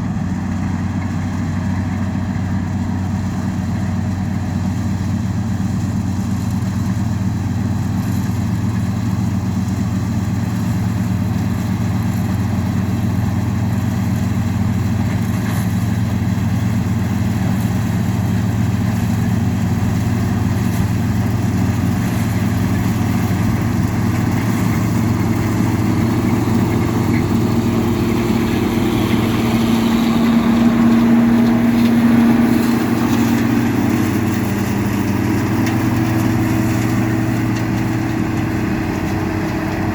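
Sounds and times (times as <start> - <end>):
farm machinery engine running: 0.0 - 39.9
higher hum: 23.3 - 39.9.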